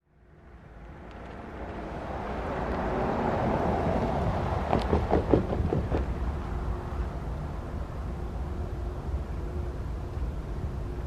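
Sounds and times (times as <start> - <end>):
diesel locomotive engine rumble: 0.1 - 11.0
wheels clanking on rails: 4.6 - 6.4.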